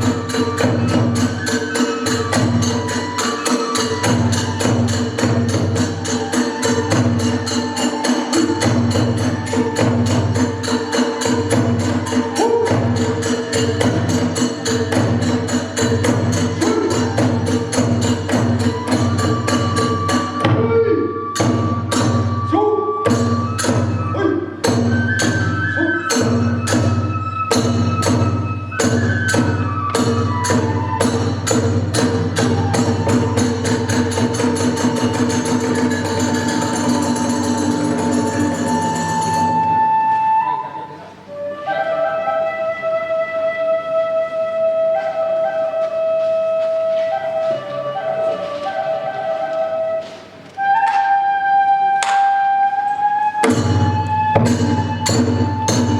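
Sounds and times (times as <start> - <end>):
hand cymbals clashing: 0.0 - 20.5, 24.6 - 39.7, 53.4 - 55.9
drums beating fast rhythm: 0.0 - 20.7, 21.3 - 39.7
bamboo flute melody: 0.0 - 55.9.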